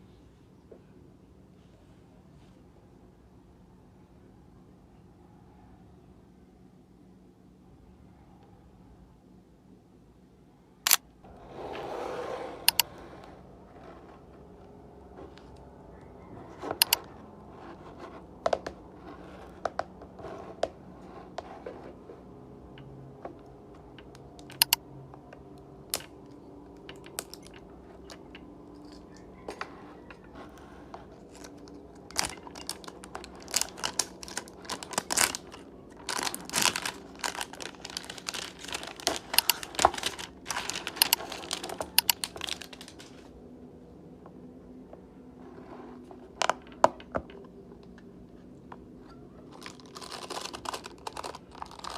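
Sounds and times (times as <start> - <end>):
plastic packaging crinkling: 31.1 - 43.3, 49.4 - 51.9.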